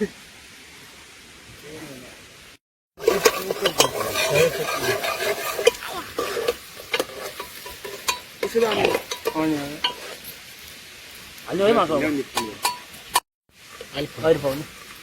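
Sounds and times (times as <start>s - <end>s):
food sizzling in a pan: 0.0s - 15.0s
utensil clicking and scraping pan: 3.0s - 10.3s.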